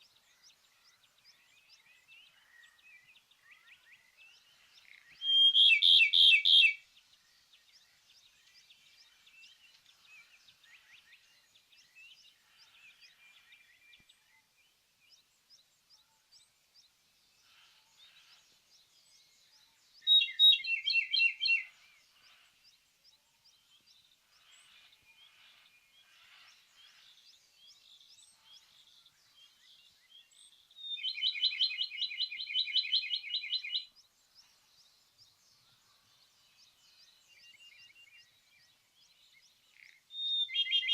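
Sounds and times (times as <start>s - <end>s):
faint bird chirps: 0.0s - 40.9s
robin singing trilled phrases: 4.8s - 6.9s, 20.0s - 21.8s, 30.0s - 35.4s, 37.1s - 40.9s.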